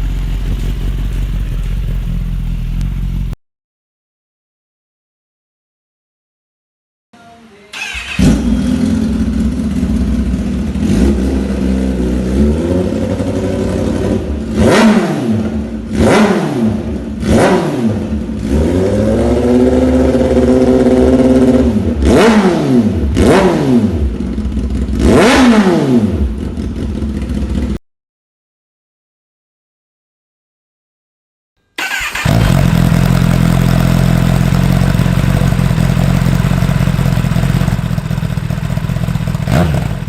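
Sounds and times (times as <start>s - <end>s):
motorcycle engine revving: 0.0s - 3.4s, 7.8s - 27.8s, 31.8s - 40.0s.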